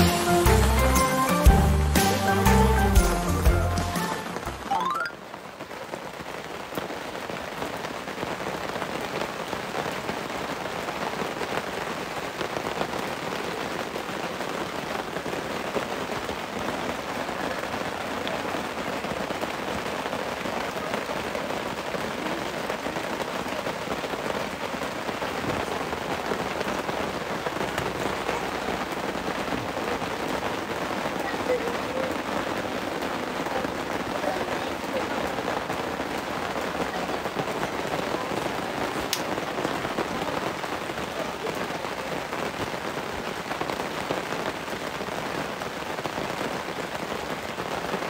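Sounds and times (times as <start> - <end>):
heavy rain on tent canopy: 0.0 - 48.0.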